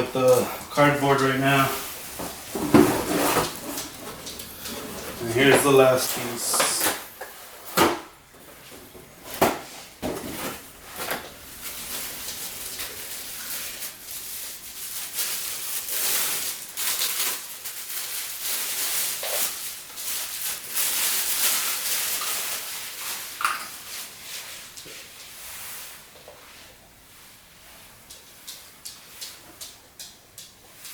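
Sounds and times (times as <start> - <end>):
packing material rustling and crinkling: 0.0 - 7.8, 8.4 - 24.8.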